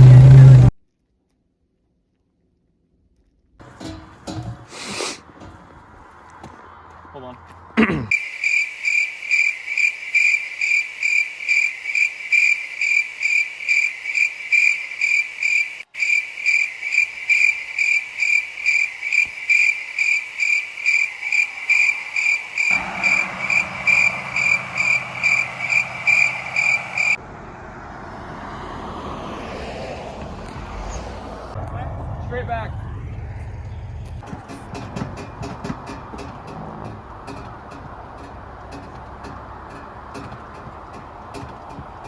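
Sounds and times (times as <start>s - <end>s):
low engine-like hum: 0.0s - 0.7s, 22.7s - 42.0s
electronic alarm beeping: 20.4s - 27.2s.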